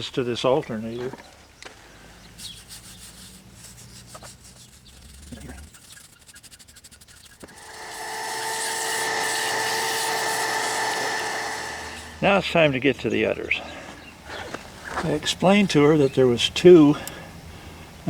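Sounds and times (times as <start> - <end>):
wire brush scrubbing metal: 2.2 - 13.4
motor-driven tool whining: 5.7 - 12.4.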